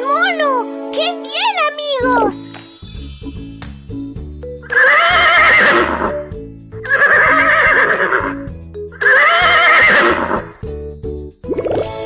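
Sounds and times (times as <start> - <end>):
background music: 0.0 - 12.0
horse neighing: 4.7 - 6.2, 6.9 - 8.4, 9.0 - 10.5.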